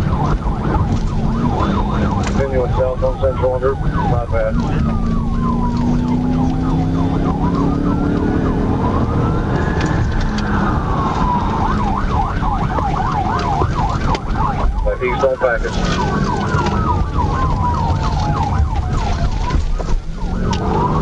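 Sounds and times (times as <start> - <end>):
engine and road noise: 0.0 - 21.0
police siren wailing and yelping: 0.0 - 21.0.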